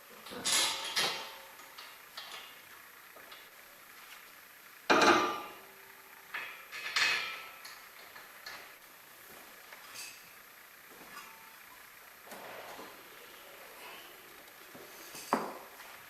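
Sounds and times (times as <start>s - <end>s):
metallic clanks of tools: 0.3s - 2.5s, 6.4s - 7.8s.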